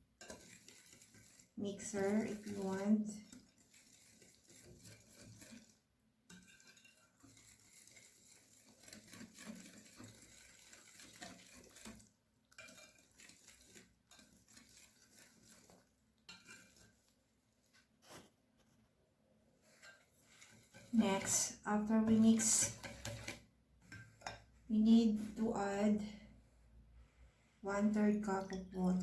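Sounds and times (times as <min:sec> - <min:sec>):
whisk clinking in bowl: 0:00.2 - 0:01.5, 0:06.3 - 0:16.9, 0:22.4 - 0:24.5.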